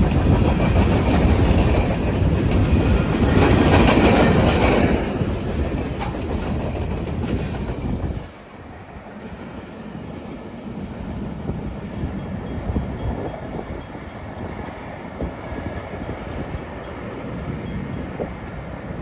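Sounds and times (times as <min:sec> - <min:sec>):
wheels knocking on track: 0:00.0 - 0:08.3
freight train cars rumbling: 0:00.0 - 0:19.0.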